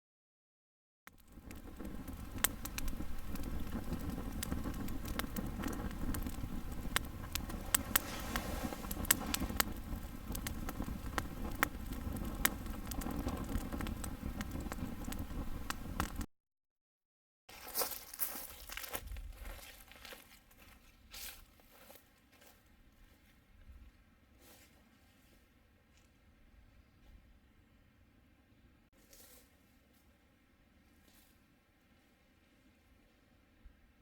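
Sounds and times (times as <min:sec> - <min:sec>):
wood fire crackling: 0:01.1 - 0:16.3
low rush of burning: 0:01.2 - 0:16.3
sharp pops of fire: 0:01.2 - 0:16.3.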